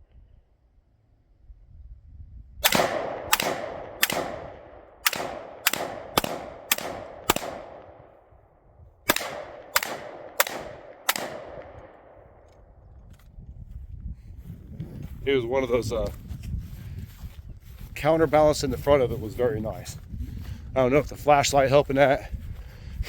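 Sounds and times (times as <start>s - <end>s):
gunshots with ringing echo: 2.6s - 12.8s.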